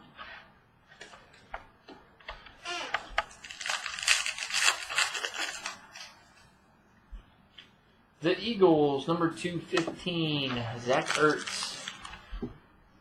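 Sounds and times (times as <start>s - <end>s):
packaging crinkling and snapping: 2.7s - 6.1s, 10.8s - 12.3s.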